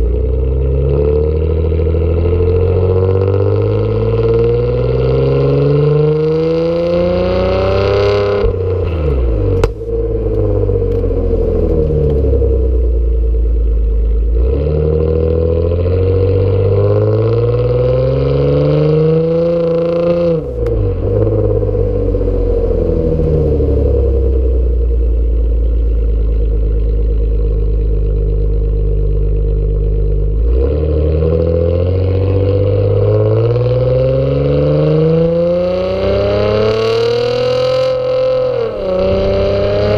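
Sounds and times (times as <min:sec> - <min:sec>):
car engine revving loudly: 0:00.0 - 0:28.3, 0:29.1 - 0:39.9.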